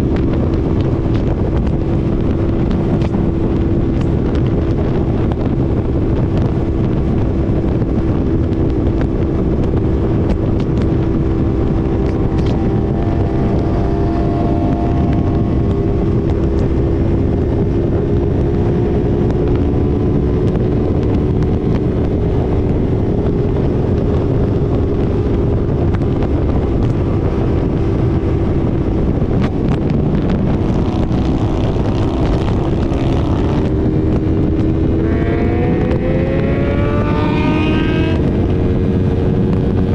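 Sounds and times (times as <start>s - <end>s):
motorcycle engine cruising: 0.0s - 39.9s
wind rush over microphone: 0.0s - 39.9s.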